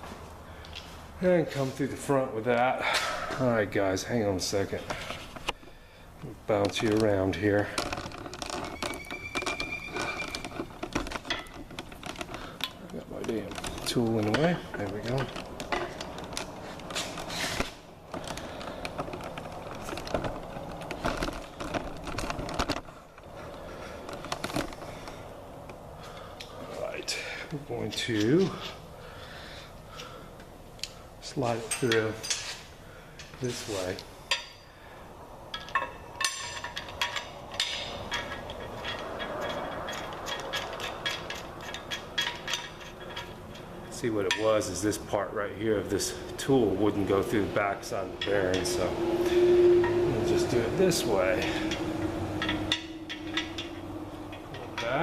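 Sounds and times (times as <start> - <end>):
metal parts clicking: 6.5 - 25.2, 35.5 - 45.0, 50.3 - 55.0
metal scraping on metal: 6.7 - 22.8, 33.4 - 34.8, 35.6 - 55.0
sharp metallic clinks: 50.2 - 55.0.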